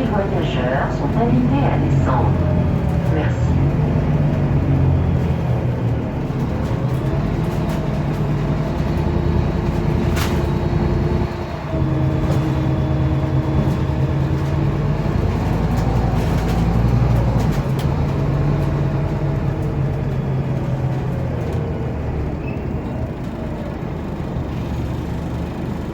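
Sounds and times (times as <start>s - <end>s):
bus diesel engine hum: 0.0s - 25.9s.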